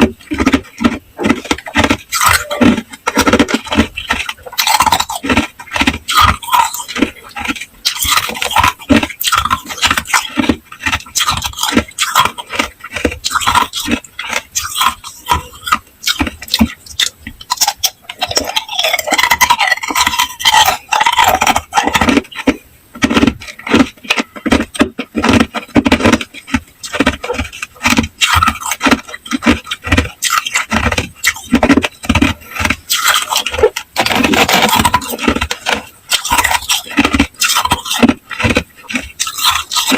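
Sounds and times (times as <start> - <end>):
ice cubes crunching: 0.0 - 39.9.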